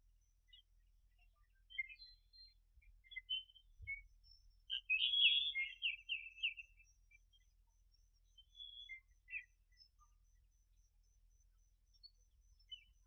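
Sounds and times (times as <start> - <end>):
birds chirping and twittering: 0.0 - 13.0.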